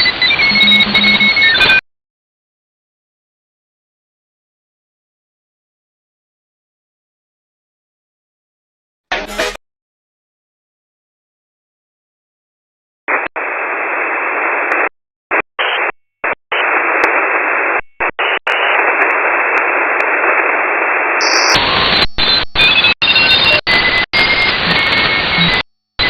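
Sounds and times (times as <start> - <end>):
shortwave static hiss: 13.1 - 22.3.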